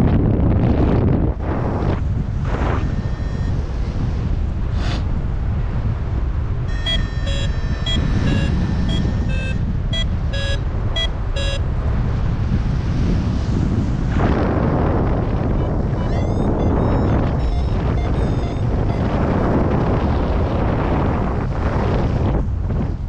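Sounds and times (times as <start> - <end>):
wind rushing over microphone: 0.0 - 23.0
variometer short beeps: 2.6 - 4.0, 6.7 - 11.7, 15.5 - 19.4.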